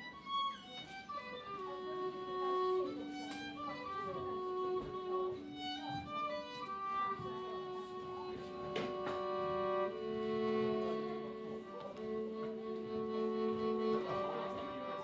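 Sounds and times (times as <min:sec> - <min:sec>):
fiddle long held notes: 0:00.0 - 0:15.0.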